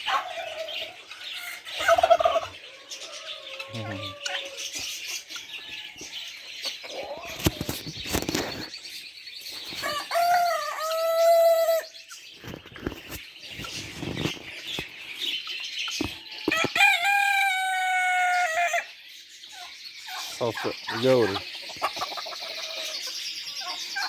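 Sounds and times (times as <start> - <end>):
poultry clucking: 0.0 - 8.8, 9.4 - 24.0
small birds chirping: 0.0 - 24.0
rooster crowing: 9.8 - 11.9, 16.5 - 18.9.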